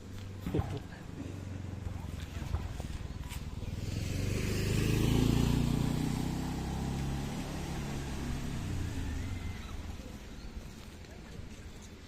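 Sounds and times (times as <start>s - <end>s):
vehicle engine passing: 0.7s - 10.6s.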